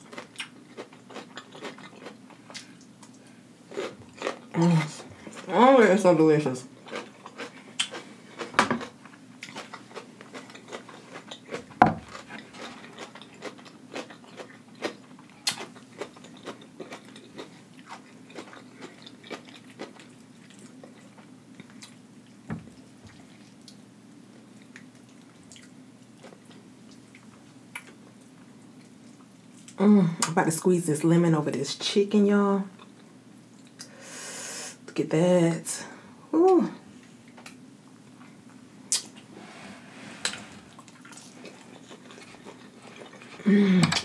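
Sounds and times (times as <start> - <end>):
chewing and biting: 0.0 - 5.5, 6.8 - 22.0, 40.8 - 43.5.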